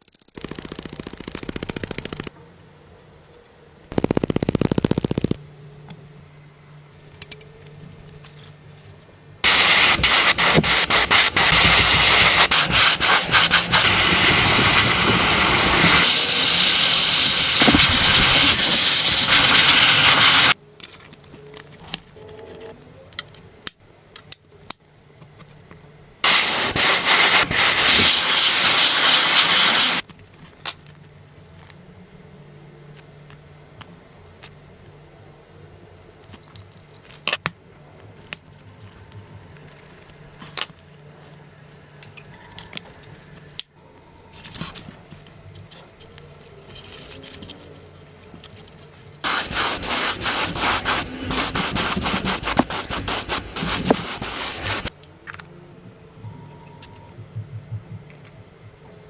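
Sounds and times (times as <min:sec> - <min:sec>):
rough pulsing abrasive noise: 0:09.4 - 0:20.6, 0:49.2 - 0:54.9.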